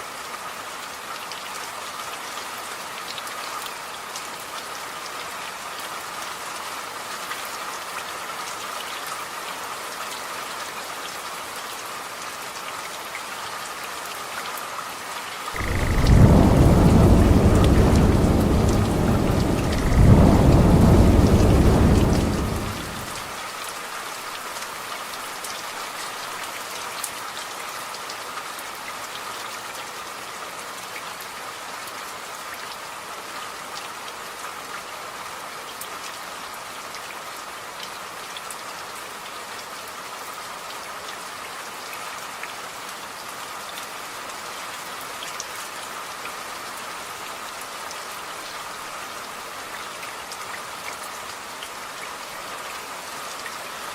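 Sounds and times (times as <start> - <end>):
steady rain: 0.0 - 53.9
thunder rumbling: 15.6 - 23.3.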